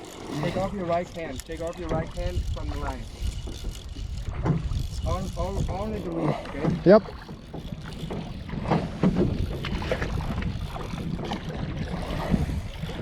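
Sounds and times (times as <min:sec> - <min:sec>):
wind on microphone: 0:00.2 - 0:13.0.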